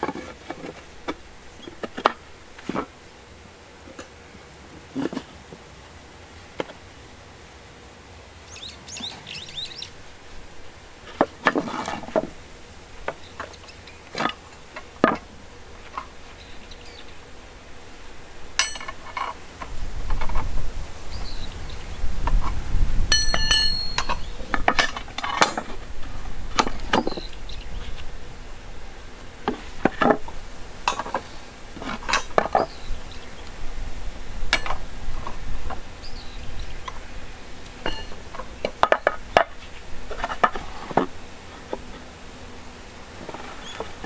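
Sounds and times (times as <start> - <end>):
metal ringing tone: 18.6 - 19.0, 23.1 - 25.6, 37.8 - 38.2
steel rebar clinking: 18.6 - 19.4, 23.1 - 25.7, 37.8 - 38.2.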